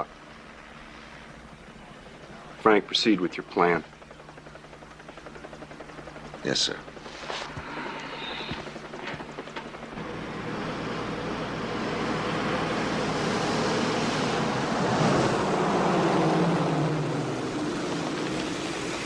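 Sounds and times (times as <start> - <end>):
low hum: 0.0 - 19.0
vehicle rushing past: 10.0 - 19.0.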